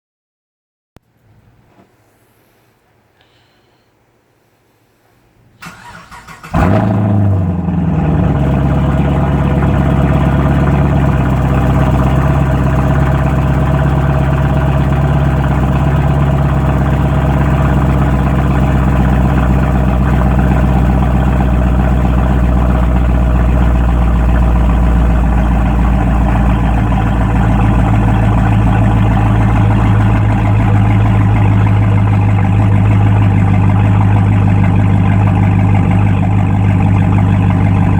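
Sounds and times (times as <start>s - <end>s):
car engine fast idle: 5.6s - 37.9s.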